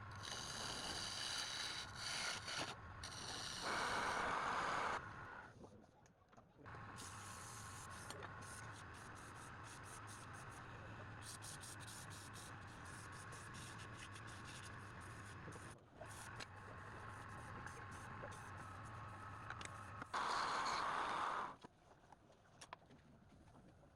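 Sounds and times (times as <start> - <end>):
faint low hum: 0.0 - 22.1
small ticks and scrapes: 0.2 - 4.0, 6.9 - 10.6, 11.2 - 20.8.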